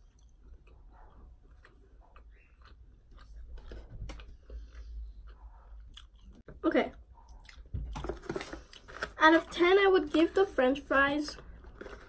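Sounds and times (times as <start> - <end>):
person chewing: 0.0 - 6.5, 7.3 - 7.7.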